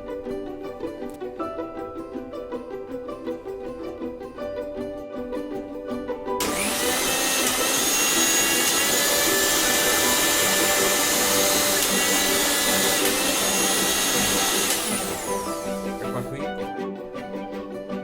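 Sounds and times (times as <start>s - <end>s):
mixer grinder motor whine: 6.4s - 16.2s.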